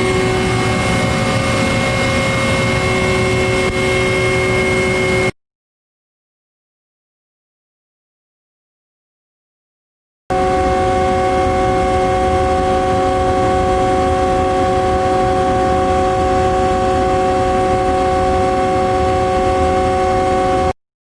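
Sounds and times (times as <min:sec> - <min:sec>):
generating machinery whining drone: 0:00.0 - 0:05.3, 0:10.3 - 0:20.8
low machinery rumble: 0:00.0 - 0:05.3.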